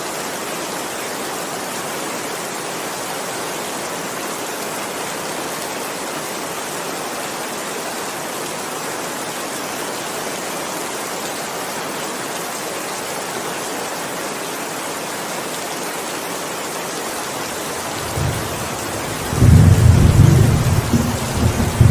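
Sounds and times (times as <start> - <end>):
heavy rain falling: 0.0 - 21.9
rolling thunder rumble: 17.8 - 21.9.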